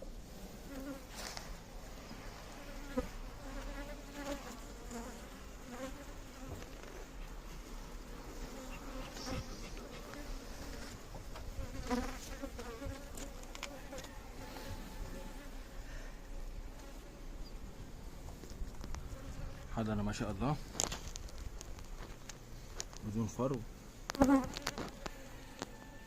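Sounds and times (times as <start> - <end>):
honeybees buzzing: 0.0 - 26.0.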